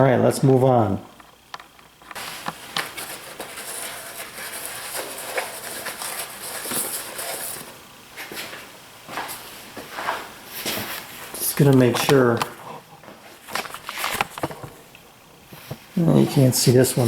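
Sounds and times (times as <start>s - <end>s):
hissy rubbing: 2.1s - 8.6s.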